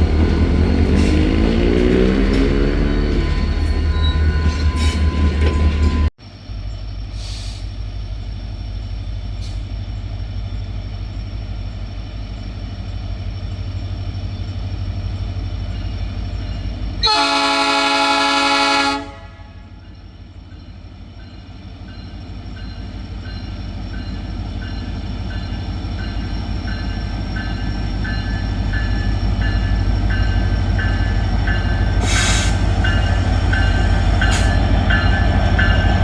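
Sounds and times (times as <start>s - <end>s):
diesel locomotives rumbling: 0.0s - 36.0s
locomotive air horn blast: 17.0s - 19.7s.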